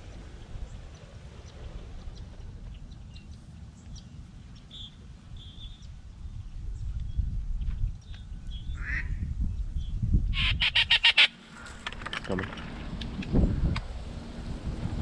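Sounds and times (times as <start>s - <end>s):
steady low rumble: 0.0s - 15.0s
bird chirps and calls: 1.4s - 6.0s.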